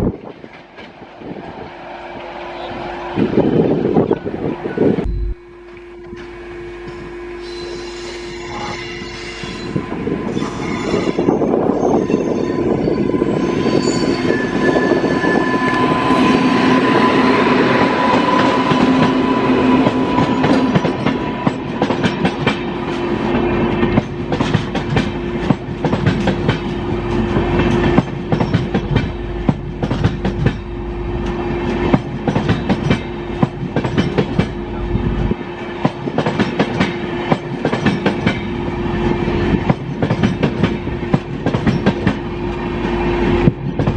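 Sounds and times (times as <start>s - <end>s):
long steady tone: 4.1s - 10.3s
train wheels clattering over rails: 17.6s - 34.7s, 35.7s - 38.6s, 39.4s - 43.9s.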